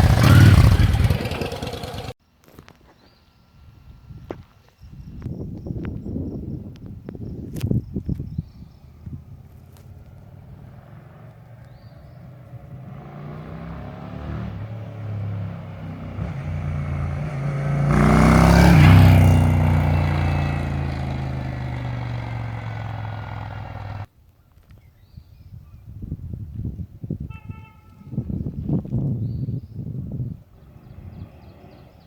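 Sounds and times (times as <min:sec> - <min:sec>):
motorcycle engine passing by: 0:00.0 - 0:02.2, 0:09.2 - 0:24.1.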